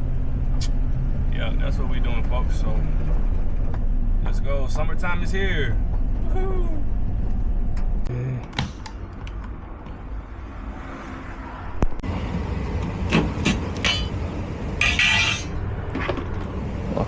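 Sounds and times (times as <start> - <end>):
vehicle low rumble: 0.0 - 17.0.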